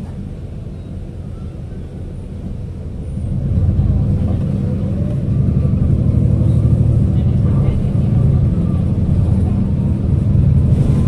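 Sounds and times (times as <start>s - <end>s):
bus engine rumbling: 0.0s - 11.0s.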